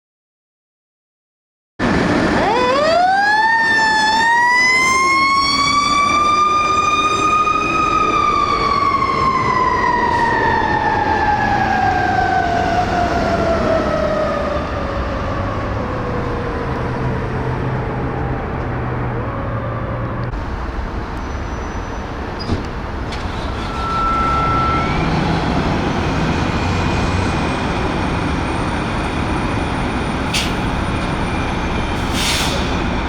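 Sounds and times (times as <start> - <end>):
fire truck siren wailing: 1.8 - 20.3, 23.1 - 33.0
diesel engine rumble: 14.2 - 33.0.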